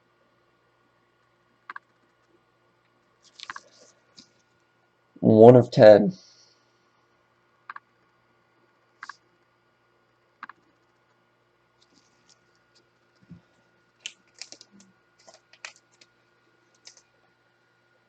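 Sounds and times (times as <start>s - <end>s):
trading cards clicking and rustling: 3.2s - 4.4s, 14.0s - 16.1s, 16.7s - 17.1s.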